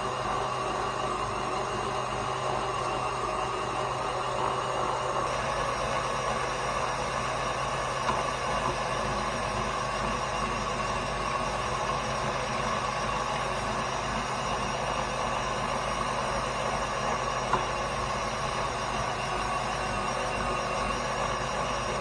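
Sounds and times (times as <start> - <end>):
stand mixer grinding meat: 0.0 - 22.0.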